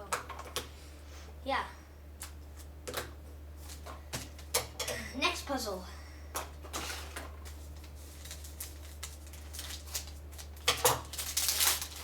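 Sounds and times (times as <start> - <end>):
packaging rustling: 7.8 - 12.0.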